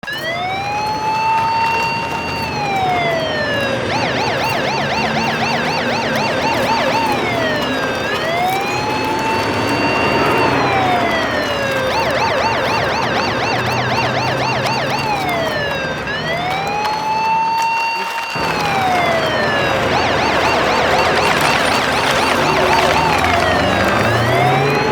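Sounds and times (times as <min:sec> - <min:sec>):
electronic siren wailing and yelping: 0:00.0 - 0:24.9.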